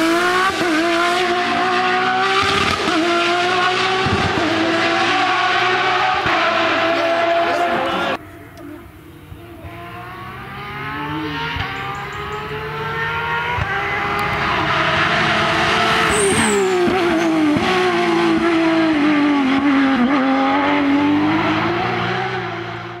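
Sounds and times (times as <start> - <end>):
rally car engine at racing speed: 0.0 - 23.0
engine downshifts under braking: 8.5 - 22.5.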